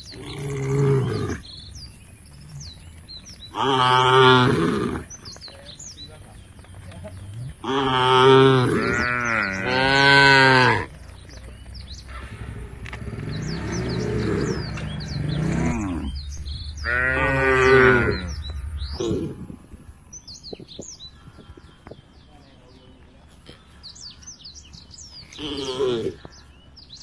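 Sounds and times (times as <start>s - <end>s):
small birds chirping: 0.0s - 27.0s
cows mooing: 3.5s - 5.2s, 6.8s - 11.0s, 11.7s - 19.5s.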